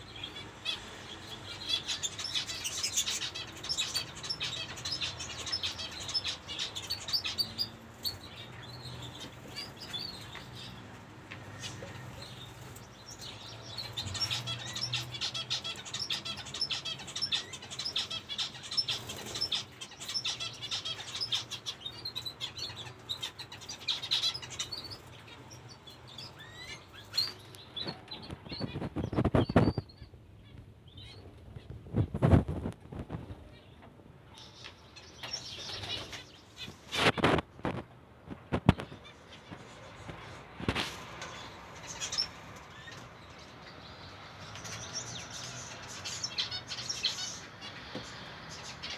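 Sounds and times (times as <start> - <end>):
finches chirping: 11.6 - 30.2.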